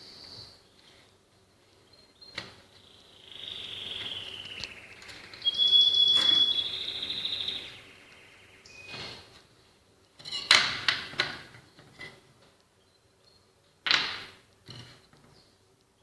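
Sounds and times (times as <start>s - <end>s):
songbird trilling: 2.7s - 9.2s.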